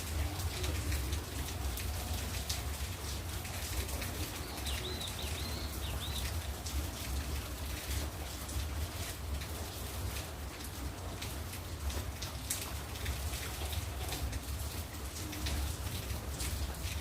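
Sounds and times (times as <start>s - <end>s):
steady rain pattering: 0.0s - 17.0s
bird chirping: 4.4s - 6.4s.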